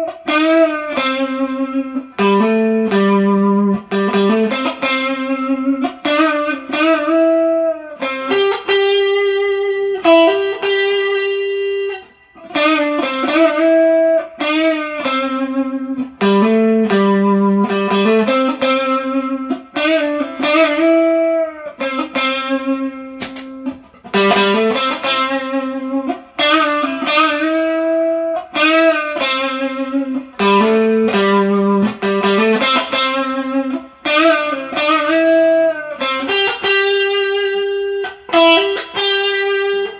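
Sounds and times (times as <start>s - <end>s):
overdriven electric guitar lead: 0.0s - 39.9s.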